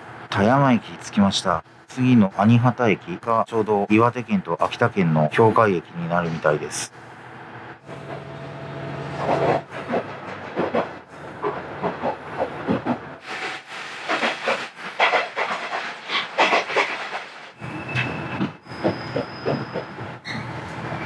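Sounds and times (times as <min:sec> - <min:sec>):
diesel engine hum: 0:05.9 - 0:13.2
train wheels clattering: 0:09.2 - 0:20.0.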